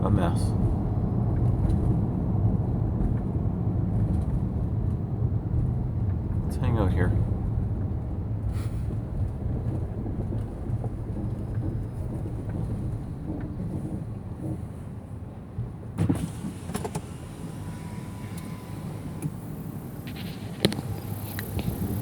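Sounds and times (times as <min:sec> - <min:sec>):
car engine rumble inside cabin: 0:00.0 - 0:22.0.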